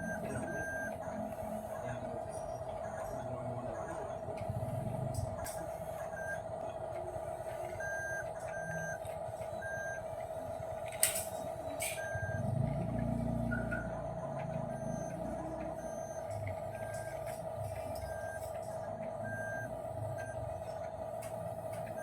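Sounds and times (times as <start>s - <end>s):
short electronic beeps: 0.0s - 1.6s, 11.3s - 18.6s.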